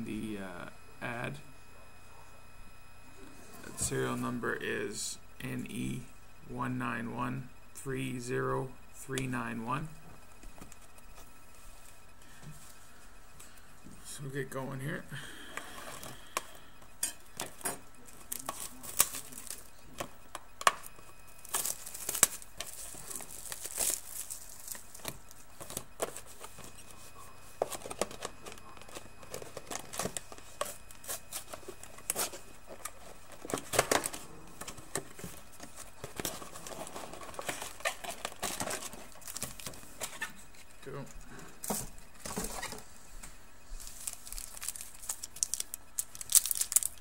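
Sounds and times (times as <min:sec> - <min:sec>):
wrapping crinkling and tearing: 0:17.4 - 0:19.7, 0:21.3 - 0:26.9, 0:27.6 - 0:40.6, 0:43.8 - 0:47.0.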